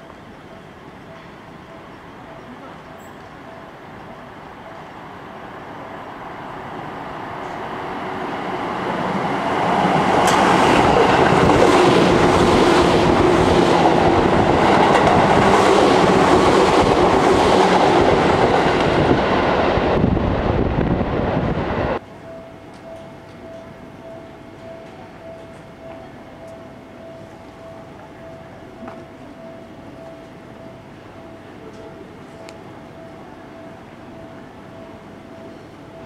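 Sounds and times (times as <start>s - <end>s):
train rumbling past: 0.0s - 36.0s
wheels clacking over rail joints: 9.8s - 19.1s.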